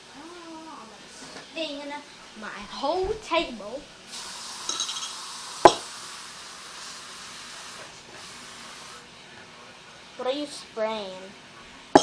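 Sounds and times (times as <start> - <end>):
spray hissing: 4.1 - 9.0.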